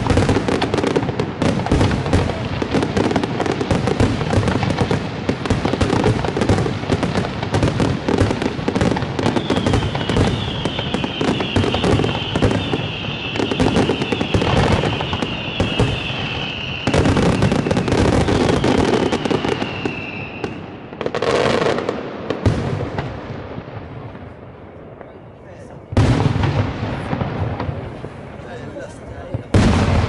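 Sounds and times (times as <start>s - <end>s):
fireworks crackling and banging: 0.0s - 30.0s
falling firework whistle: 7.6s - 22.7s.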